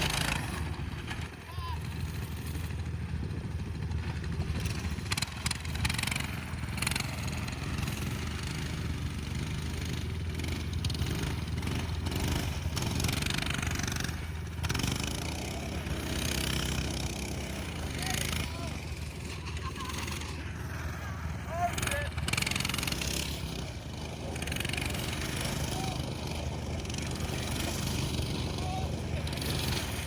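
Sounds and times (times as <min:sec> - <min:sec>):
dirt bike engine running: 0:00.0 - 0:30.0.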